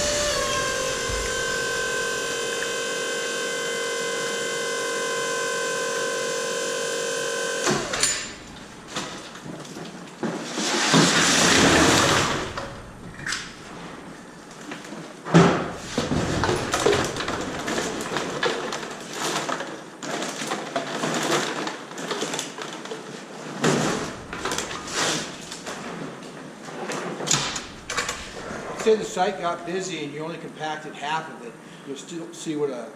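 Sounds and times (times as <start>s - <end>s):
loud rustling: 0.0s - 5.0s, 7.5s - 14.8s, 15.4s - 19.4s, 23.7s - 26.2s, 27.3s - 29.9s
baler motor humming: 0.0s - 9.4s, 11.9s - 14.5s, 15.6s - 18.4s, 23.9s - 25.7s, 27.4s - 29.7s.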